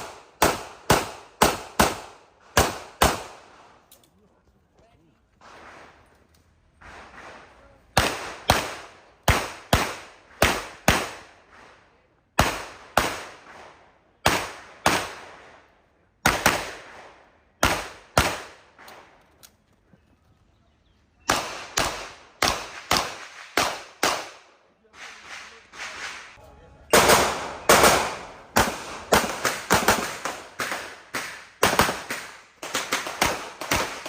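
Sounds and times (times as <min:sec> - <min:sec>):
pistol shots echoing: 0:00.0 - 0:03.7, 0:06.8 - 0:11.4, 0:12.4 - 0:15.5, 0:16.2 - 0:19.1, 0:21.2 - 0:24.5, 0:26.9 - 0:34.0.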